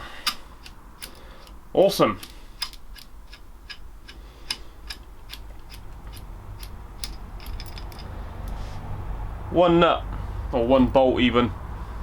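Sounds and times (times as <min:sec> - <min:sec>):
socket ratchet clicking: 0:02.2 - 0:08.1.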